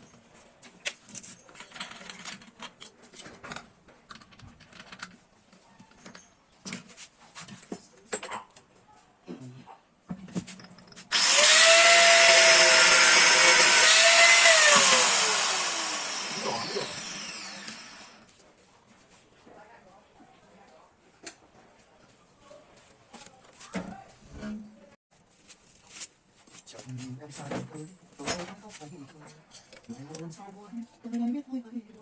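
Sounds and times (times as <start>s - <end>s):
angle grinder running: 11.1s - 18.2s.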